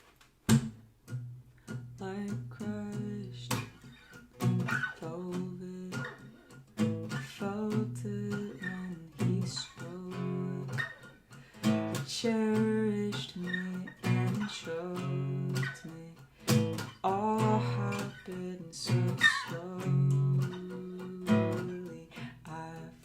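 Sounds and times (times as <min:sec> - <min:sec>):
acoustic stringed instrument strumming: 0:00.5 - 0:23.0.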